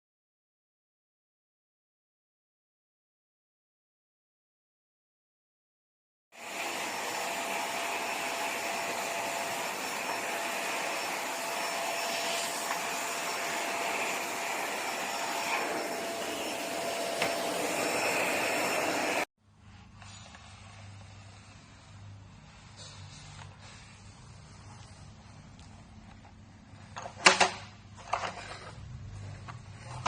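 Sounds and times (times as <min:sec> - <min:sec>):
vacuum cleaner running: 0:06.4 - 0:19.3.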